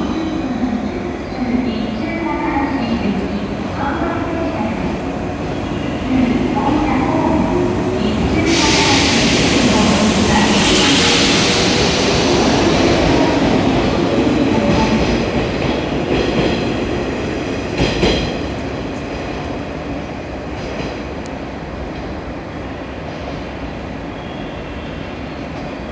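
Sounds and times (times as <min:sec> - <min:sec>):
electric train running past: 0:02.9 - 0:22.3.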